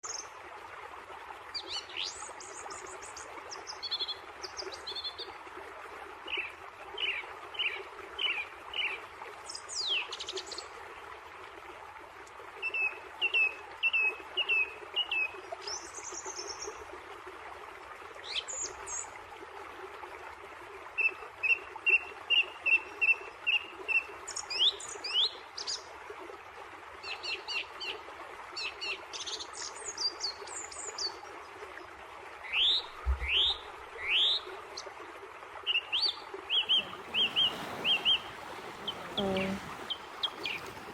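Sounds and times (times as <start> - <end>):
wild birds singing and calling: 35.7 - 40.9
steady background hiss: 36.8 - 40.9.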